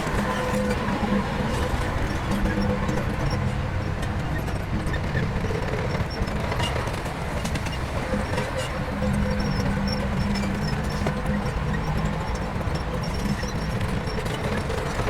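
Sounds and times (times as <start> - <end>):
heavy diesel engine rumbling: 0.0 - 15.0.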